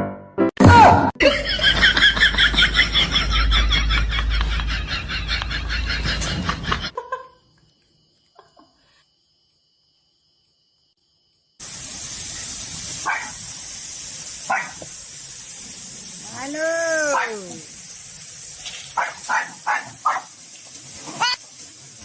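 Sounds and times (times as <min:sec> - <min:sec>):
background hiss: 0:11.6 - 0:22.0
dog barking: 0:13.0 - 0:13.4, 0:14.4 - 0:14.9, 0:17.1 - 0:17.4, 0:18.9 - 0:20.4, 0:21.1 - 0:21.4.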